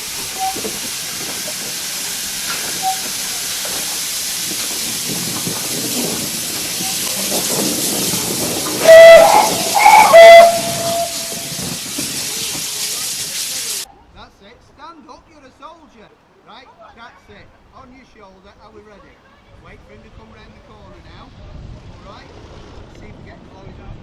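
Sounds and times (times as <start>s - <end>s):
steam locomotive hissing: 0.0s - 13.9s
locomotive whistle blast: 0.3s - 0.7s, 2.8s - 3.2s, 8.8s - 11.6s.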